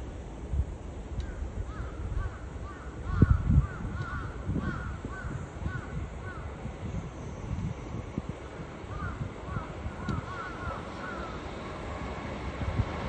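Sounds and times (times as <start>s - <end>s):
wind buffeting microphone: 0.0s - 13.0s
birds calling: 1.2s - 7.4s, 8.9s - 11.6s.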